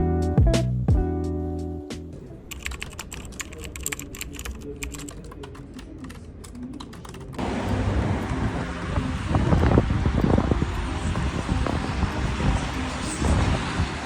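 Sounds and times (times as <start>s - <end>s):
keyboard typing: 2.5s - 7.4s
steady rushing noise: 7.4s - 14.0s.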